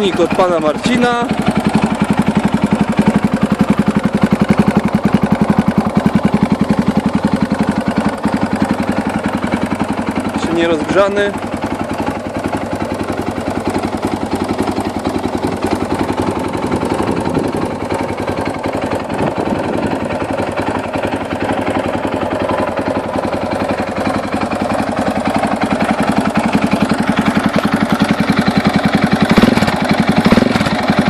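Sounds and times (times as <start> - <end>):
motorcycle engine idling: 0.0 - 31.0.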